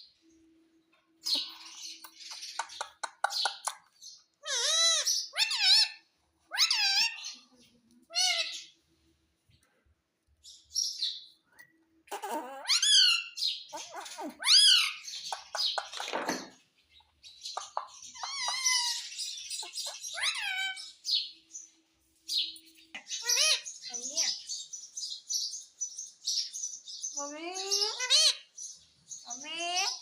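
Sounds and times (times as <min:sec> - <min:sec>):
parrot chirps and screeches: 0:04.4 - 0:08.8, 0:12.1 - 0:16.5, 0:17.5 - 0:21.3, 0:23.0 - 0:24.4, 0:27.2 - 0:28.6.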